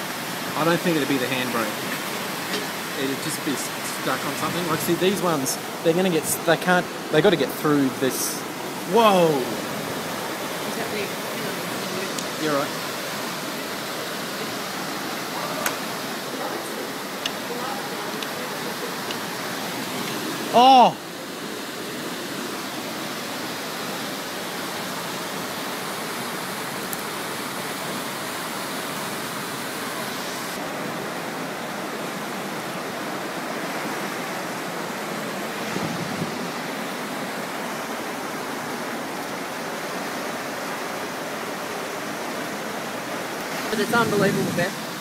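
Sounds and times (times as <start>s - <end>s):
floodwater rushing: 0.0s - 45.0s.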